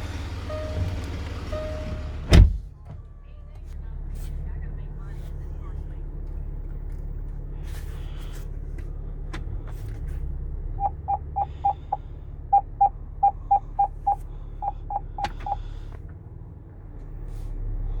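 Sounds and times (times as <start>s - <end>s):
short electronic beeps: 10.8s - 15.6s.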